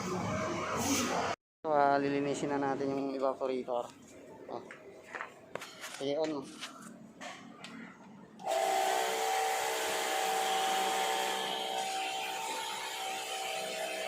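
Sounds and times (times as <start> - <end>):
pressure washer motor whining: 8.4 - 14.0.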